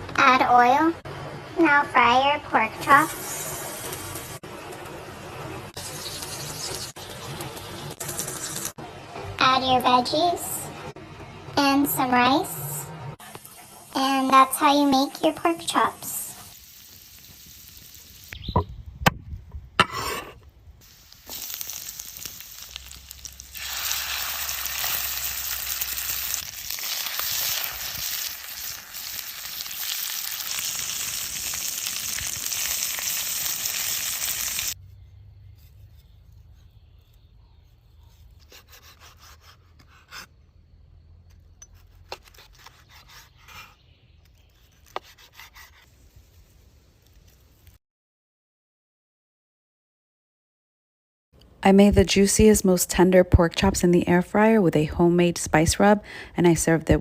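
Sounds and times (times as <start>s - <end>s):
food sizzling in hot oil: 3.0s - 4.4s, 5.8s - 8.8s, 13.3s - 18.5s, 20.8s - 34.8s.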